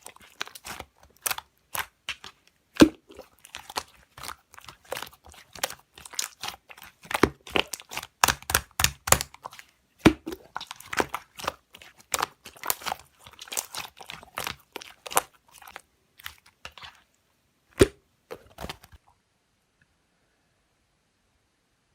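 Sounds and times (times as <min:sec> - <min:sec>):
hands squishing slime: 0:00.0 - 0:19.0
wet slime clicks and pops: 0:07.1 - 0:09.4.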